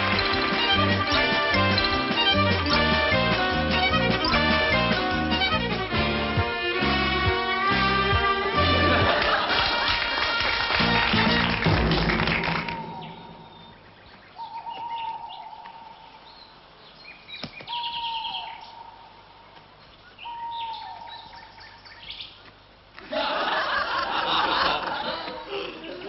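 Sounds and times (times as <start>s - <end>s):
bird chirps: 0.0s - 4.8s, 12.6s - 22.4s
long whistled bird notes: 12.6s - 15.5s.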